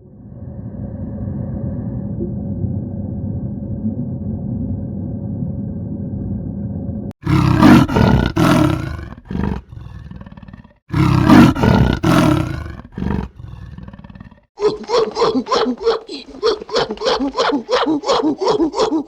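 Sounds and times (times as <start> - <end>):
low rumble: 0.0 - 7.1
large animal calling loudly: 7.2 - 19.0.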